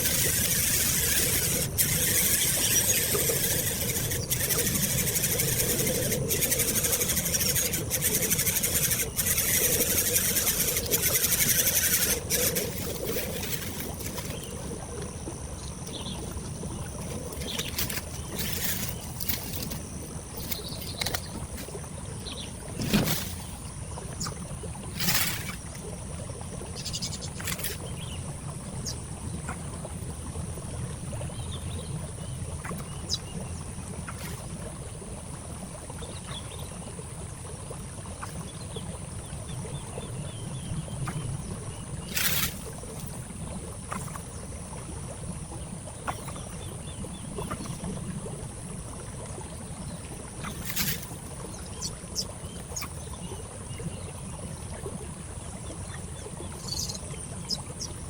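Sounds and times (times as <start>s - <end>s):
thin high-pitched hum: 0.0s - 29.7s, 49.5s - 54.7s.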